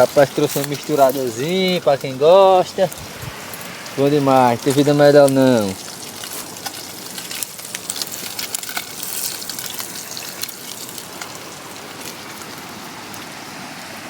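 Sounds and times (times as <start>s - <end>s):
fish sizzling on a stove: 0.0s - 14.0s.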